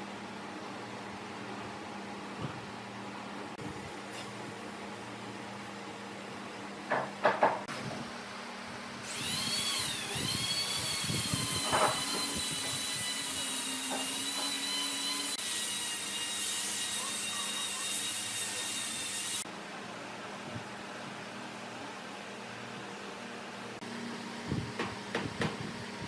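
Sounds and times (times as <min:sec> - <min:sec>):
power tool high whine: 0:09.0 - 0:19.4.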